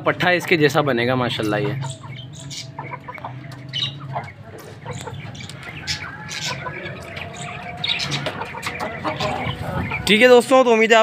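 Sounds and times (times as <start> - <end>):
birds chirping and squawking: 0.0 - 11.0.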